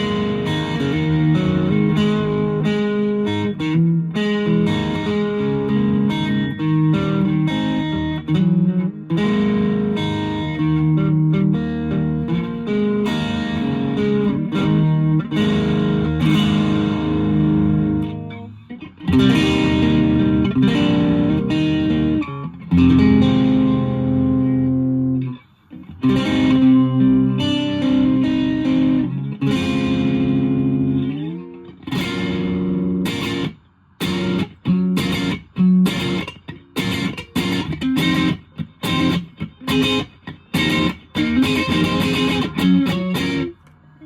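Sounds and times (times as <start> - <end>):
distorted electric guitar chords: 0.0 - 43.9.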